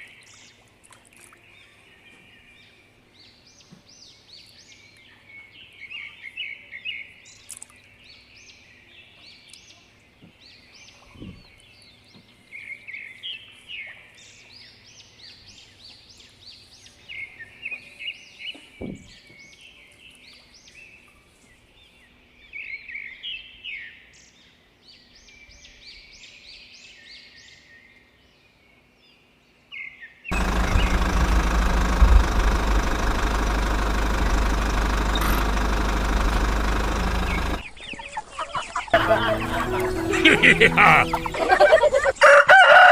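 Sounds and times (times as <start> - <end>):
small birds chirping: 29.8 - 41.6
small diesel engine running: 30.3 - 37.7, 39.0 - 41.4.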